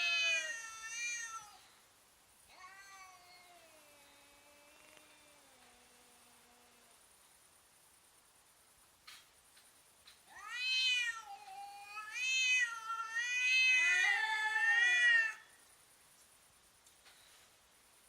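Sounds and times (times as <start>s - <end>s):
cat threat yowl: 10.3s - 15.4s.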